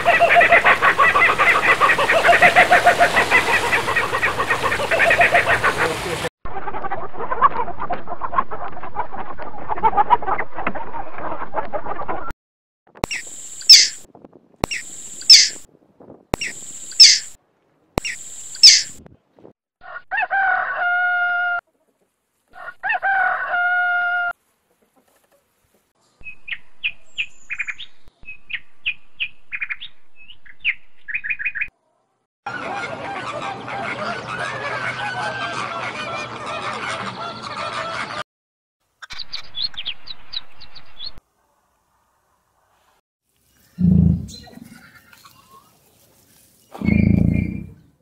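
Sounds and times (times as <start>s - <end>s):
chicken clucking: 0.0s - 6.0s, 13.7s - 14.0s, 15.3s - 15.6s, 16.4s - 17.2s, 18.0s - 19.0s, 32.5s - 38.2s
flamingos honking: 0.0s - 6.2s, 13.2s - 14.0s, 14.7s - 15.6s
chickens calling: 0.0s - 10.4s, 13.0s - 14.0s, 14.6s - 15.7s, 16.4s - 17.4s, 18.0s - 19.0s, 32.5s - 38.2s, 43.8s - 45.8s
rooster crowing: 19.8s - 21.6s, 22.5s - 24.3s.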